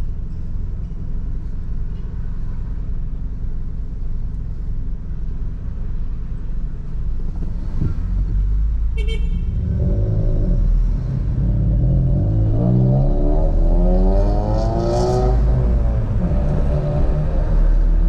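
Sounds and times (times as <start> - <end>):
car engine idling and accelerating: 0.0 - 18.0
car horn toot: 9.0 - 9.6.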